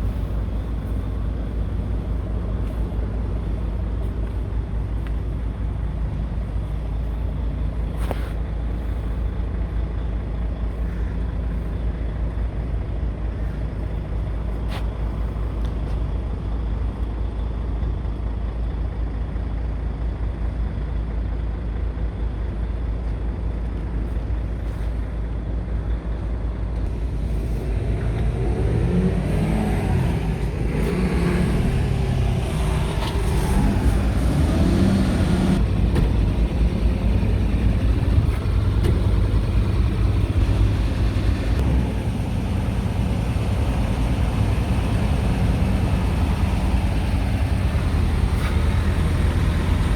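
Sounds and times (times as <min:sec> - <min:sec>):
diesel truck engine idling and revving: 0:00.0 - 0:49.9.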